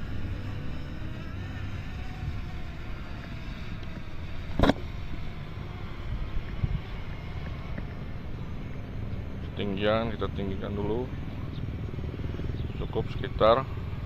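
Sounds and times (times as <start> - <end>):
wind rumbling on microphone: 0.0 - 9.6.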